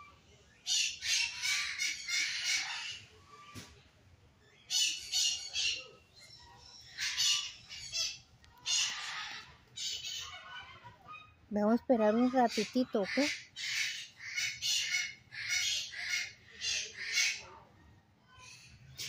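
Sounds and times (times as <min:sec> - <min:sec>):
parakeets squawking: 0:00.7 - 0:03.1, 0:06.5 - 0:17.5.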